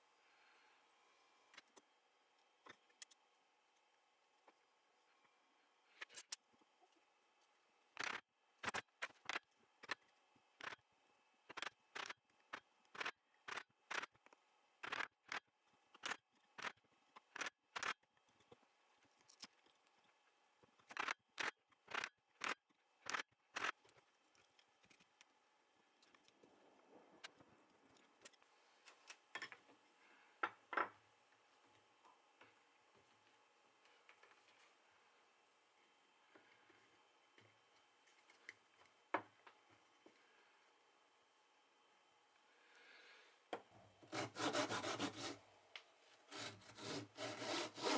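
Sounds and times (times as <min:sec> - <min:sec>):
hand tool scraping hardwood: 0:44.0 - 0:45.4, 0:46.3 - 0:47.9.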